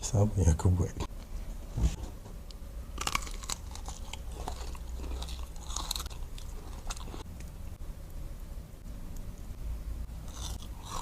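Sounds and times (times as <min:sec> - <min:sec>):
crunchy chocolate bar bites: 0:03.0 - 0:07.3
chewing: 0:03.0 - 0:07.6, 0:10.3 - 0:11.0.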